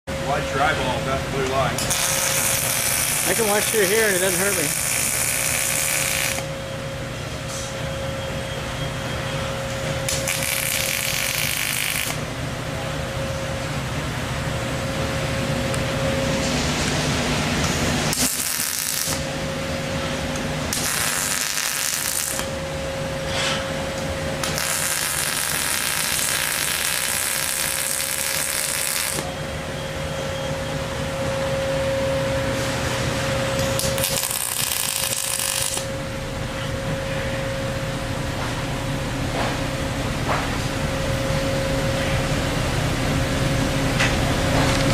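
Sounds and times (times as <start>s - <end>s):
steady hum: 0.1s - 44.9s
welding arc crackling: 1.7s - 6.6s, 10.0s - 12.3s, 17.4s - 19.6s, 20.2s - 22.7s, 23.9s - 29.4s, 33.6s - 35.9s.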